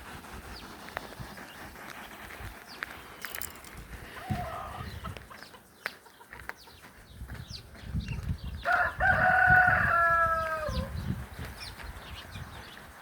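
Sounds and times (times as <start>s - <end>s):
rooster crowing: 8.7s - 10.9s.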